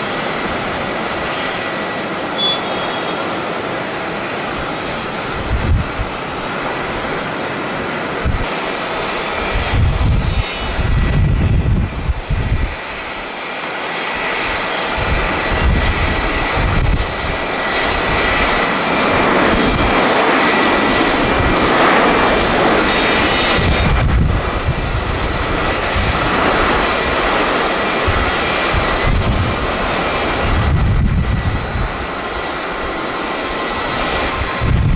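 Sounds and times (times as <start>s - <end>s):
jet engines rushing: 0.0s - 34.9s
thin high whine: 2.2s - 3.9s
wind buffeting microphone: 3.7s - 34.9s.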